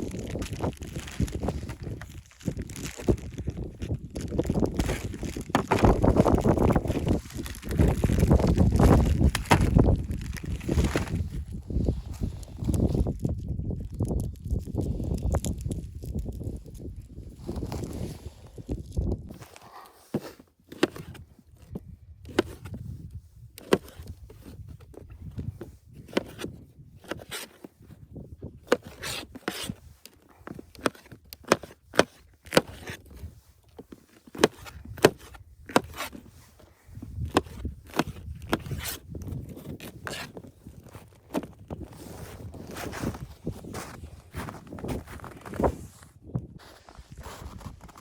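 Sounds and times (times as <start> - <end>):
scraping and rubbing: 19.3 - 21.3, 28.7 - 48.0.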